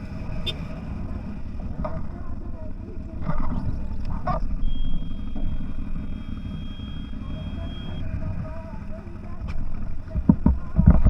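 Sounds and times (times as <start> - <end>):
off-road vehicle engine rumble: 0.0 - 11.0
thin high whine: 3.2 - 9.2.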